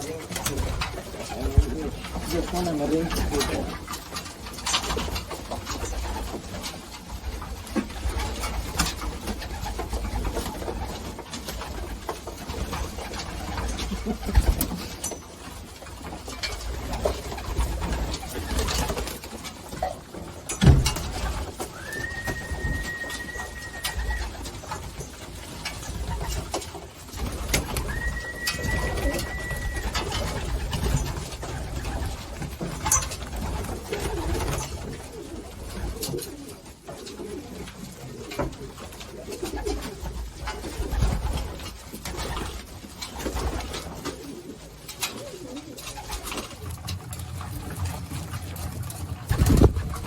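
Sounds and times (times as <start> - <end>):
pigeons cooing: 0.0 - 50.0
steady high tone: 27.9 - 30.1.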